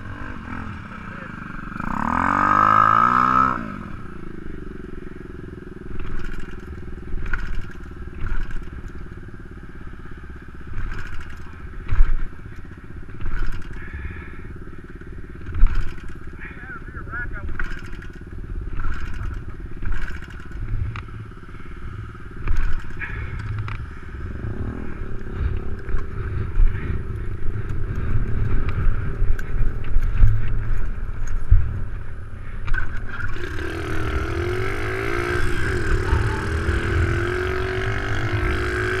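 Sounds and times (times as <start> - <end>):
minibike engine running: 0.0 - 39.0
wind buffeting microphone: 22.4 - 39.0.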